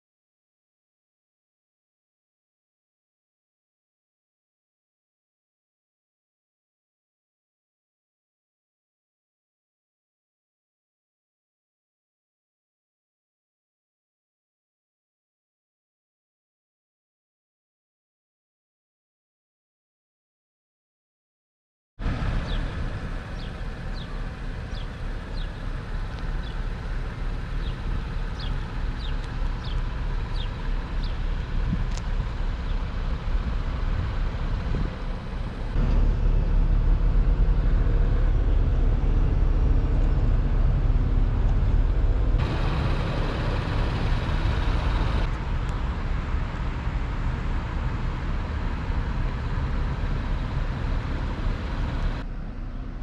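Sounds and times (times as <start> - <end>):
car engine and road noise: 22.0 - 53.0.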